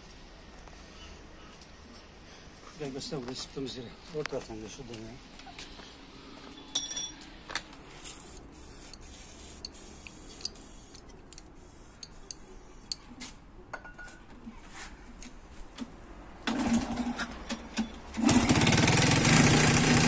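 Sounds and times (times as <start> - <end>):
ringing ping: 6.7 - 7.2.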